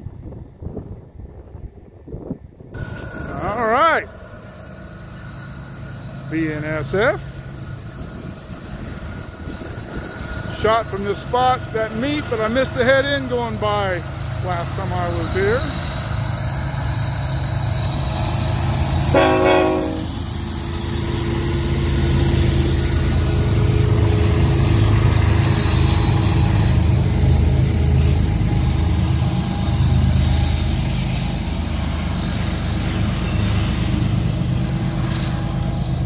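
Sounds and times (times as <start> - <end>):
diesel locomotives droning: 0.0 - 36.0
train horn blast: 19.1 - 20.2.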